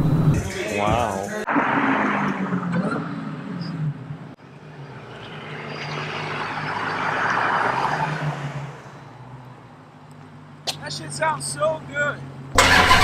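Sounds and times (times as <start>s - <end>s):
loud car engine exhaust: 12.5s - 13.0s.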